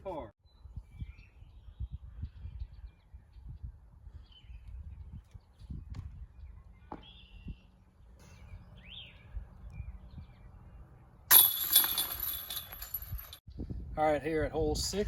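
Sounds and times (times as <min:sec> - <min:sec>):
bird chirps: 0:04.2 - 0:11.1
disc hitting metal chains: 0:11.3 - 0:13.4.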